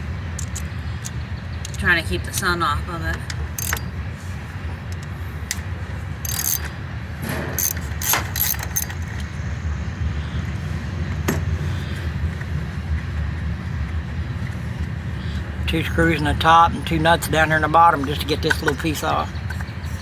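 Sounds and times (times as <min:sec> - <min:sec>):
metallic clinks of hand tools: 0:00.4 - 0:02.5, 0:03.6 - 0:04.0, 0:06.3 - 0:06.7, 0:07.6 - 0:09.2.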